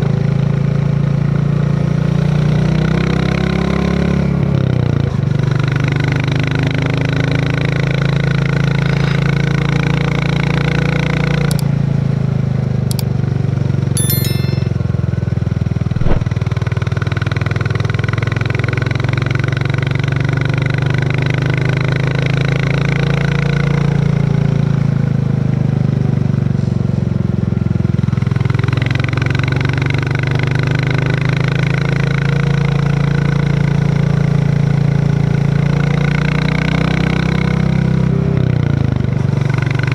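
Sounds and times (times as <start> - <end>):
short knock: 15.9 - 16.3.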